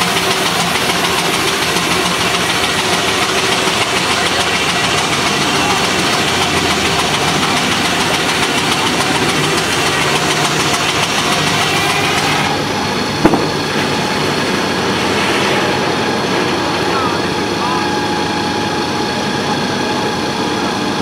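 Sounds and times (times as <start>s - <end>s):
sawmill machinery din: 0.0s - 21.0s
sharp knock: 13.2s - 13.9s.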